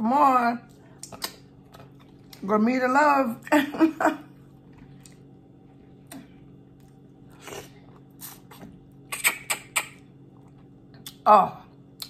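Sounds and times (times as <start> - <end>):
low steady hum: 0.0 - 12.0
wet chewing and mouth smacks: 0.7 - 2.4.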